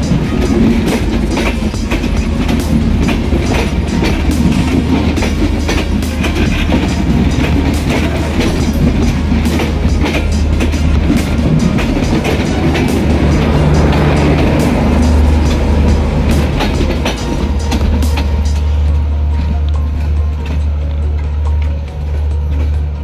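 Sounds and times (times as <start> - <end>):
train rumble: 0.0 - 23.0
train wheels clacking: 0.0 - 23.0.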